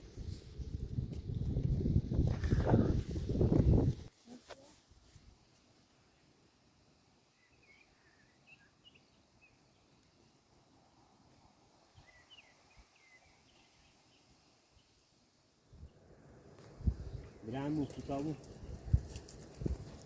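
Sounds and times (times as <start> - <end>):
faint high bird chirps: 7.3 - 10.0, 12.0 - 14.9.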